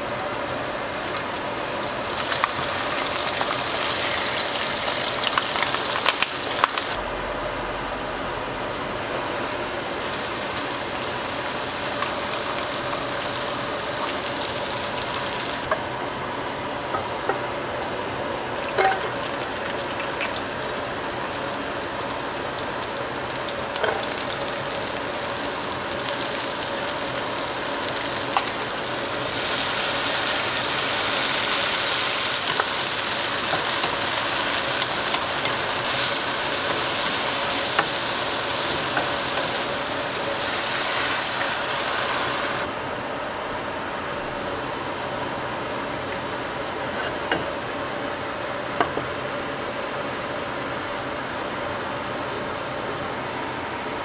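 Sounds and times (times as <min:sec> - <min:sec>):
vegetables sizzling in hot oil: 0:00.0 - 0:07.0, 0:09.0 - 0:15.7, 0:18.6 - 0:42.7
faint steady hum: 0:00.0 - 0:54.0.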